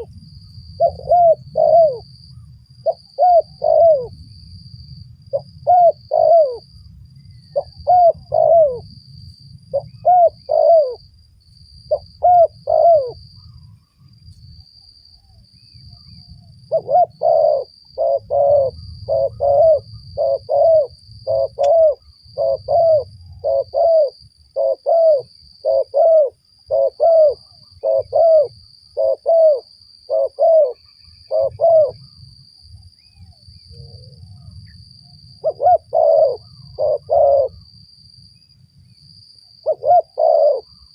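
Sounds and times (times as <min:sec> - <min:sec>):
dove cooing: 0:00.8 - 0:02.1, 0:02.8 - 0:04.2, 0:05.3 - 0:06.7, 0:07.5 - 0:08.9, 0:09.7 - 0:11.0, 0:11.9 - 0:13.2, 0:16.7 - 0:32.1, 0:35.4 - 0:37.7, 0:39.6 - 0:40.9.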